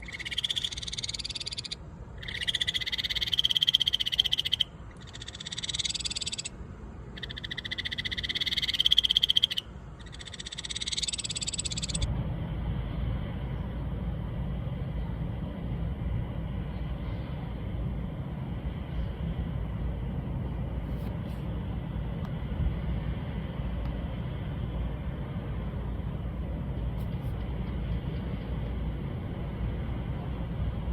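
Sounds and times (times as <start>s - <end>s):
frog calling: 0.0s - 6.6s, 7.2s - 12.1s
steady low rumble: 0.0s - 30.9s.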